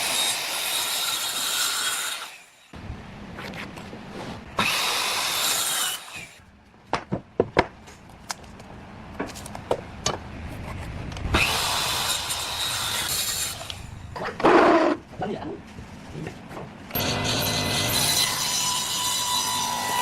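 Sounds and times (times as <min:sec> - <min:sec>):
power tool cutting wood: 0:00.0 - 0:02.6, 0:04.6 - 0:06.4, 0:11.4 - 0:13.8, 0:16.9 - 0:20.0.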